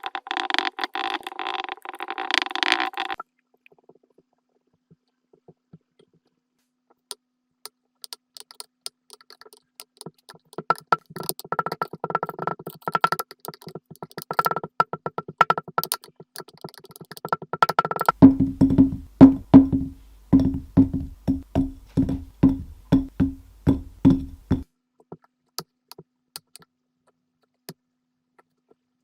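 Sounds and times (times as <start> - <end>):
wood-block musical beat: 16.6 - 24.6.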